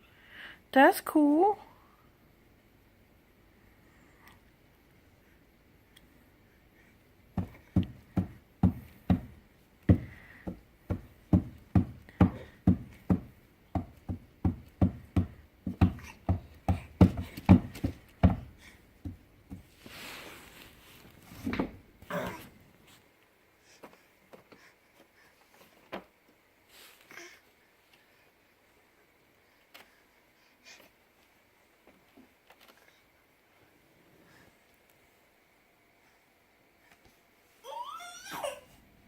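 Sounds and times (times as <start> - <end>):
baby's hands banging on table: 7.4 - 18.5
soft noises: 14.7 - 39.0.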